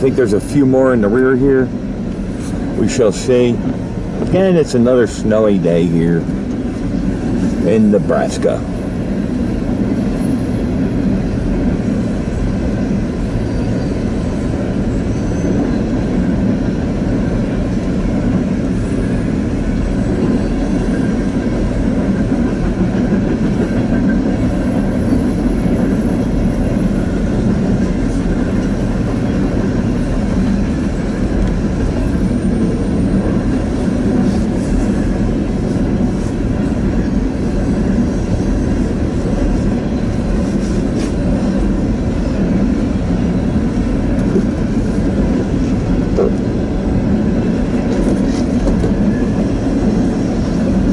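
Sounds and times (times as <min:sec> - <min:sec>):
freight train wheels rumbling on rails: 0:00.0 - 0:50.9.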